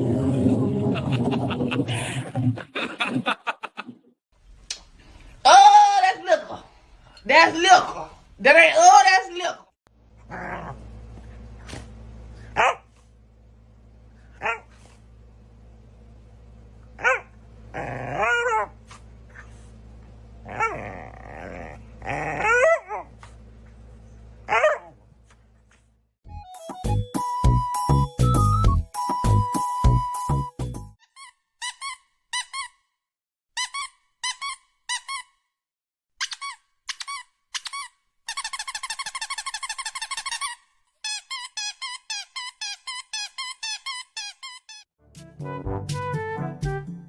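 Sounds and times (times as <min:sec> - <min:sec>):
dog growling: 0:10.2 - 0:11.9, 0:17.7 - 0:19.6, 0:20.4 - 0:23.4
dog barking: 0:12.6 - 0:13.0, 0:14.4 - 0:14.8, 0:17.0 - 0:17.3, 0:24.5 - 0:25.0
squeaky toy squeaking: 0:31.0 - 0:32.8, 0:33.6 - 0:35.4, 0:36.2 - 0:44.9.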